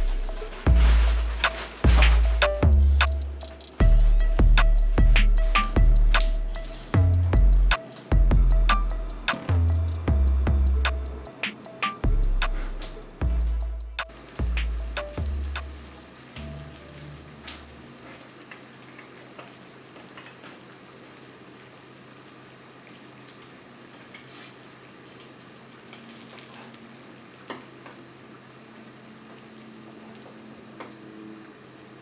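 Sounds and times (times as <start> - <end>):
food sizzling in a pan: 14.1 - 30.2.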